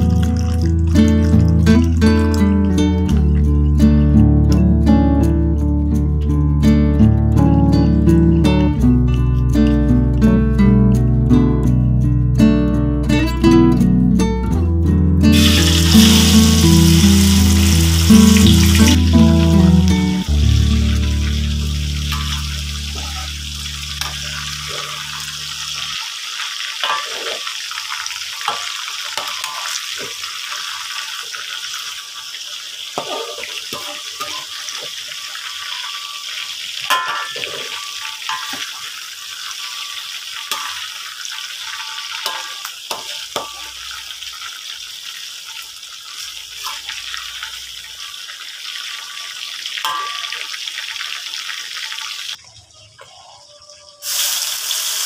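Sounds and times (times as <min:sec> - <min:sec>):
livers sizzling in hot oil: 0:00.0 - 0:05.0, 0:15.3 - 0:55.0
metal spatula scraping a pan: 0:22.1 - 0:23.4, 0:26.8 - 0:27.7, 0:33.0 - 0:38.9.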